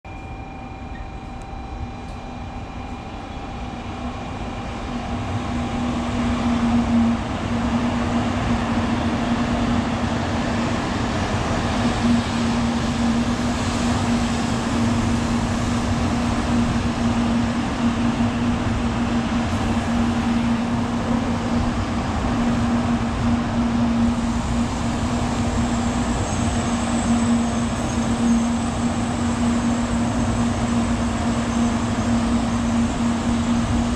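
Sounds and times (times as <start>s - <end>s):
thin high whine: 0.1s - 7.7s
rumble of train cars: 0.1s - 33.9s
train electric hum: 0.1s - 33.9s.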